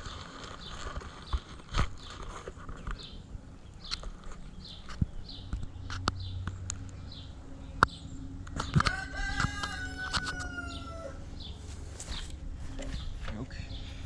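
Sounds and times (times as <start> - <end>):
small birds chirping: 0.0 - 14.0
rooster crowing: 8.6 - 11.5.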